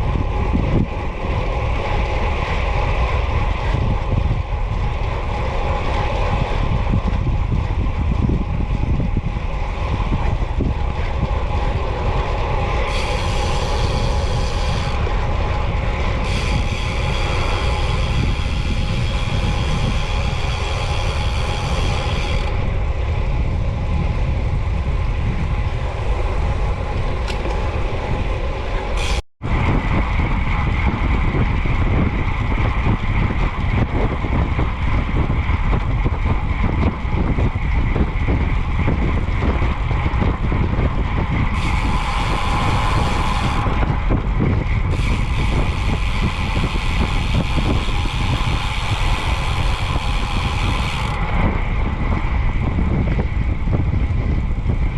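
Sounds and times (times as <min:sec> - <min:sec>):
bicycle tyre rumble: 0:00.0 - 0:54.9
wind buffeting microphone: 0:00.0 - 0:54.9
high whine with overtones: 0:37.0 - 0:53.6.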